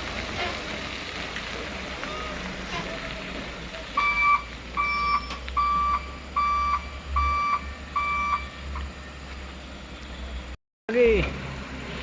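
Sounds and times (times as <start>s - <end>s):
diesel engine rumbling: 0.0s - 12.0s
truck reversing alarm beeping: 4.0s - 10.6s.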